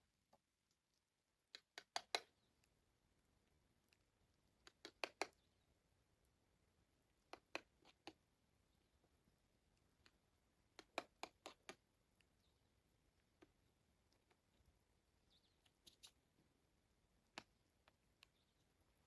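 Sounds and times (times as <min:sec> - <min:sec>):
sharp clicks: 0:01.5 - 0:02.7.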